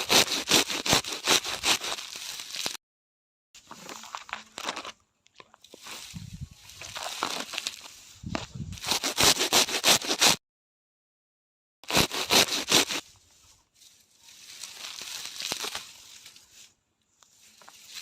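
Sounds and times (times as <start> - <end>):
scraping and rustling strokes: 5.6 - 10.4, 11.9 - 18.0.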